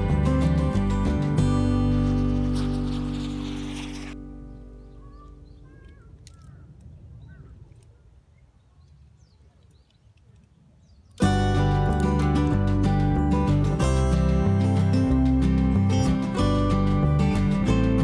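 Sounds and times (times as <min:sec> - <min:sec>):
background music: 0:00.0 - 0:04.6, 0:11.2 - 0:18.0
guitar music: 0:00.0 - 0:05.6, 0:11.2 - 0:18.0
bird chirps: 0:02.6 - 0:11.2.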